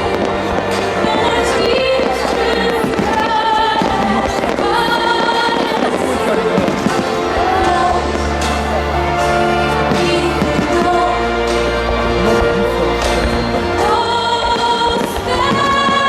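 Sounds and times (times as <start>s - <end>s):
fireworks bursting: 0.0s - 16.0s
music with long held notes: 0.0s - 16.0s.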